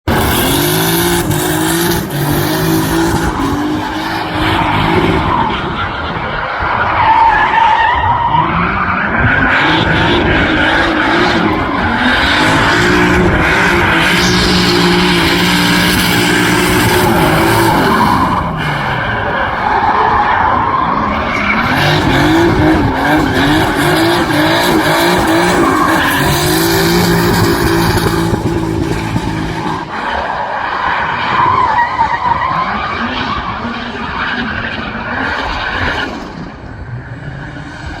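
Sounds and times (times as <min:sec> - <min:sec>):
car engine revving high: 0:00.0 - 0:06.3, 0:08.2 - 0:30.2
tyres squealing and skidding: 0:00.1 - 0:38.0.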